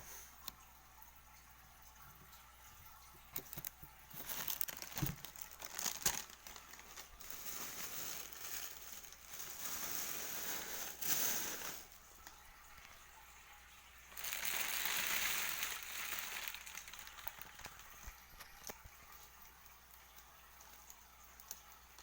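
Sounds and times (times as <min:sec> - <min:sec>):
plastic bag crinkling: 0:03.4 - 0:12.0, 0:14.1 - 0:19.4.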